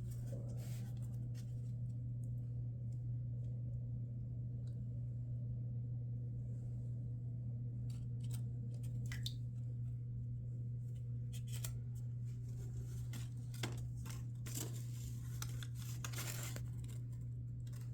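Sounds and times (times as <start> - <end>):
steady low hum: 0.0 - 17.9
paper crinkling: 11.3 - 17.9
paper rustling: 11.3 - 17.9
scissors snipping paper: 13.2 - 17.0.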